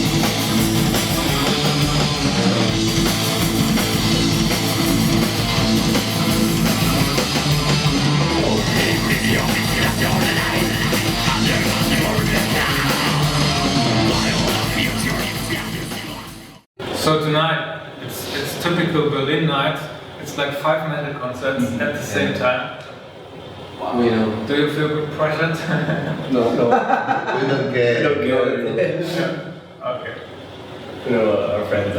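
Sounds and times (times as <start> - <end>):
heavy metal band playing live: 0.0 - 16.6.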